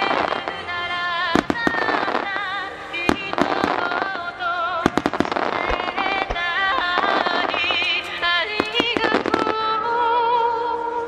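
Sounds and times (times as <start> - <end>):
music with wavering melody: 0.0 - 11.0
firework shells bursting: 1.4 - 9.7.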